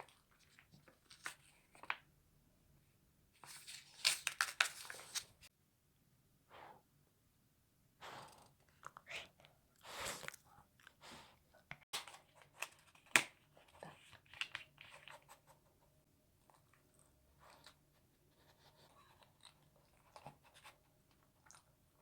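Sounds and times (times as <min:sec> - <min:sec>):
chewing and crunching food: 0:08.6 - 0:15.4, 0:16.4 - 0:18.0, 0:18.8 - 0:22.0.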